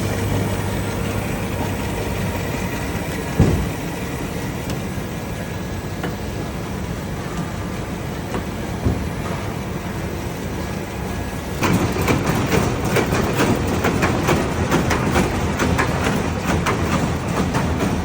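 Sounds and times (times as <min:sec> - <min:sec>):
machinery humming: 0:00.0 - 0:18.0
machine sharp clacks: 0:11.6 - 0:18.0.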